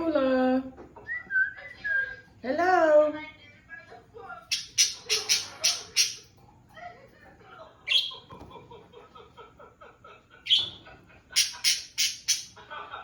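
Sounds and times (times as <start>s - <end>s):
parrot chattering: 4.5s - 6.3s, 7.9s - 8.3s, 10.5s - 12.6s.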